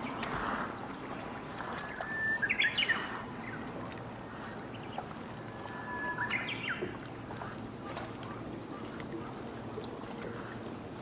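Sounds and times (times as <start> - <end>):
bird singing whistled song: 1.9 - 3.1, 5.2 - 6.8.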